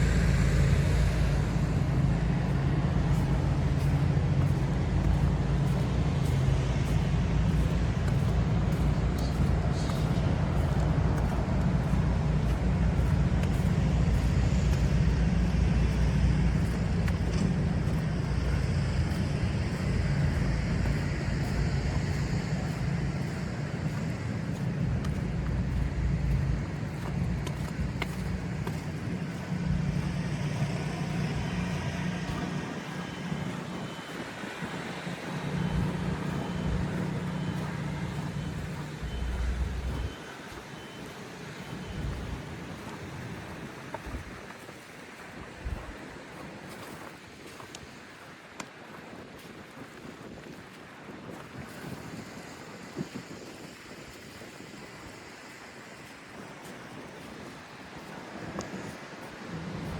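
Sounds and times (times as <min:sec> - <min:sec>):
vehicles passing: 0:00.0 - 0:44.5, 0:58.6 - 0:59.9
faint high beep: 0:30.5 - 0:42.6.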